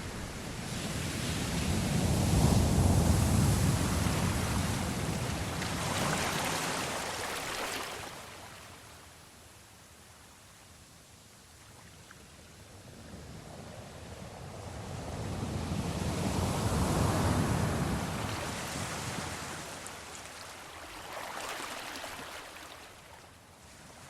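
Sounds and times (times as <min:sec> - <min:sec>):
sea waves washing: 0:00.0 - 0:08.9, 0:16.3 - 0:23.4.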